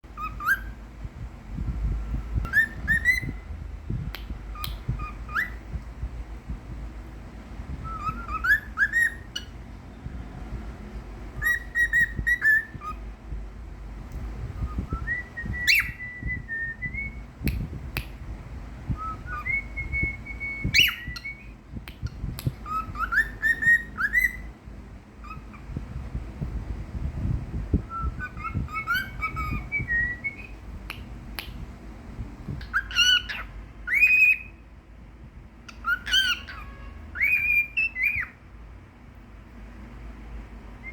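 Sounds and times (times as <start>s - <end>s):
cockatiel whistling: 0.2s - 0.8s, 2.4s - 3.4s, 4.6s - 5.6s, 7.8s - 9.5s, 11.4s - 13.0s, 14.6s - 17.2s, 18.9s - 24.5s, 25.2s - 25.6s, 27.9s - 31.5s, 32.6s - 34.6s, 35.7s - 38.4s.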